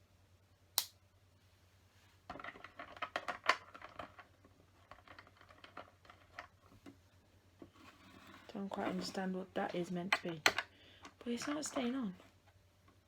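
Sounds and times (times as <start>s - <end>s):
plastic pieces clicking and rattling: 2.3s - 6.6s, 10.1s - 12.1s.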